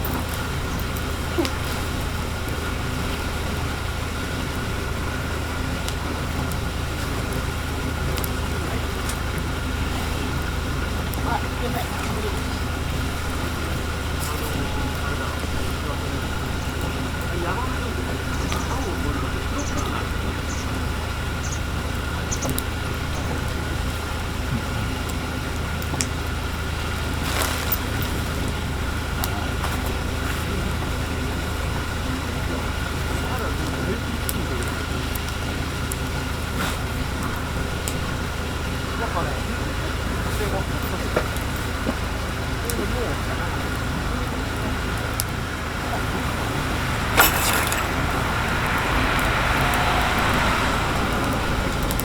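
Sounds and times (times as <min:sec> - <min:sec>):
fire low rumble: 0:00.0 - 0:52.0
low mechanical hum: 0:00.0 - 0:52.0
wood fire crackling: 0:00.0 - 0:52.0.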